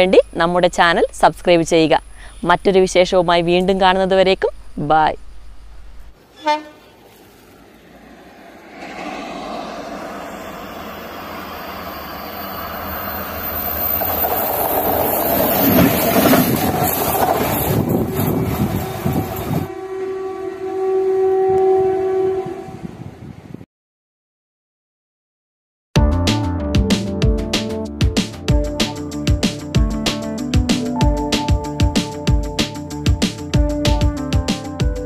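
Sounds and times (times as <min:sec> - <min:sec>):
diesel locomotive engine: 0:00.0 - 0:23.5
train wheels clattering on rails: 0:13.5 - 0:19.7.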